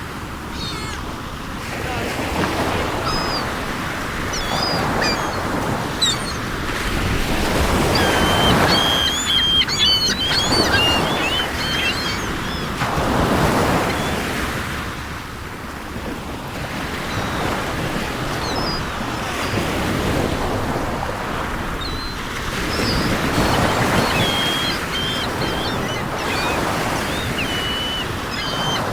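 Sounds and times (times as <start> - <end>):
waves washing onto shore: 0.0 - 28.9
wind: 0.0 - 28.9
small birds chirping: 0.5 - 1.1, 1.9 - 14.3, 18.3 - 19.7, 21.6 - 28.9.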